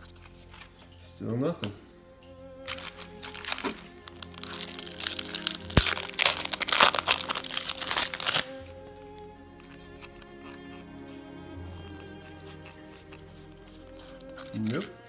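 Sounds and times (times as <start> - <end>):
background music with held tones: 0.0 - 15.0
wrapper tearing and crackling: 2.6 - 9.2, 12.5 - 15.0.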